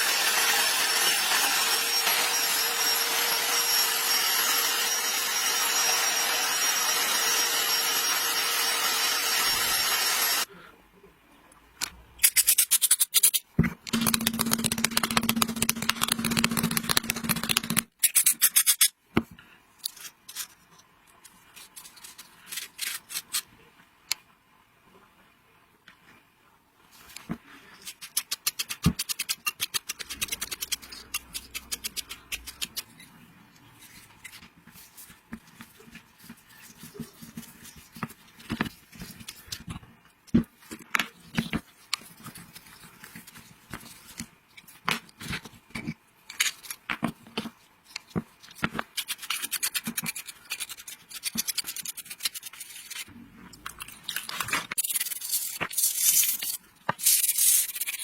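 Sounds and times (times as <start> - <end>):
sharp clicks and taps: 13.9 - 17.9
scraping and rubbing strokes: 47.6 - 58.0.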